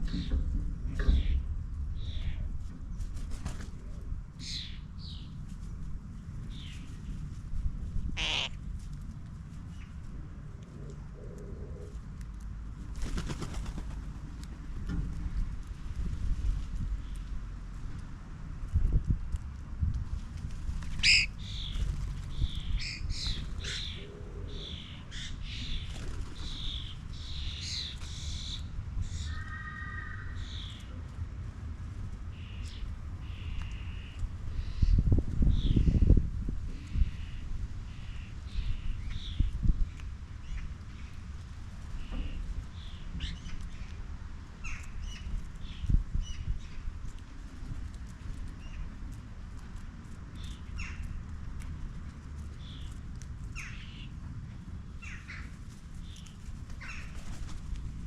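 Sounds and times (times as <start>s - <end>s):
steady low rumble: 0.0s - 29.5s, 30.1s - 58.0s
birds chirping and squawking: 8.2s - 8.6s, 20.9s - 30.9s, 55.0s - 57.4s.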